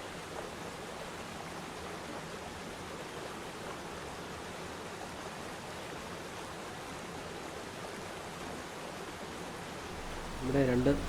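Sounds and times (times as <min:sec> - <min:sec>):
waterfall rushing: 0:09.9 - 0:11.0.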